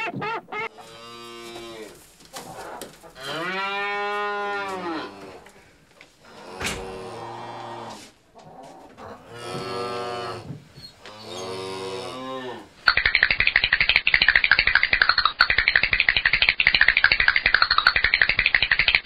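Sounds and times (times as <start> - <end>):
buffalo lowing: 0.6 - 12.9
dense rapid crackling buzz: 12.8 - 19.0.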